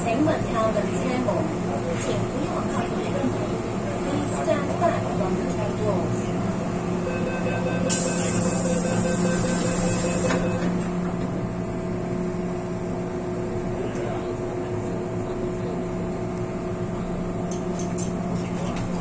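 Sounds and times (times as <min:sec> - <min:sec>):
train electrical hum and rumble: 0:00.0 - 0:19.0
door-closing beeps: 0:07.2 - 0:10.9.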